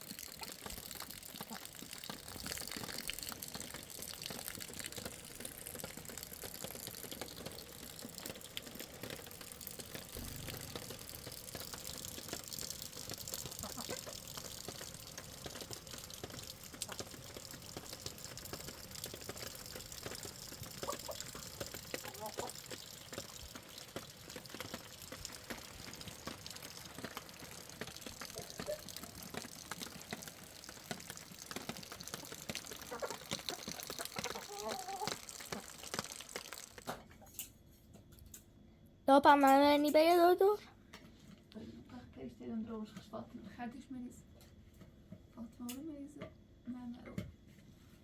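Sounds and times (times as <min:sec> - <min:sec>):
water drips: 0:00.0 - 0:37.0
water splashing and trickling: 0:00.0 - 0:37.0.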